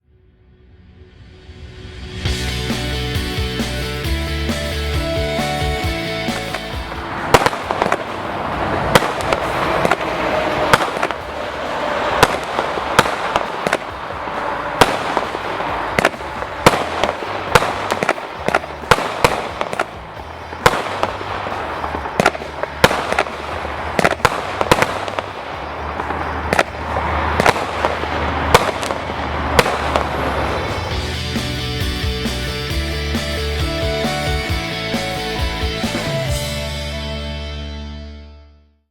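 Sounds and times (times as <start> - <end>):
firework cake bangs and bursts: 6.4 - 30.9.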